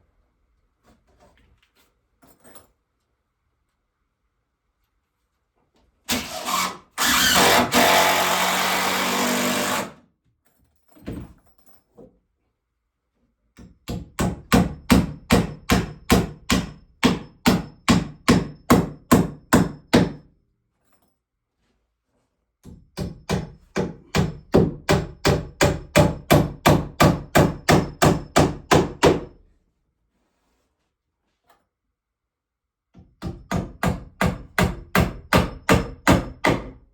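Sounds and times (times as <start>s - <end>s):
hammering nails into wood: 6.1s - 9.9s, 13.6s - 20.3s, 22.6s - 29.4s, 32.9s - 36.8s
power tool running: 6.1s - 10.0s.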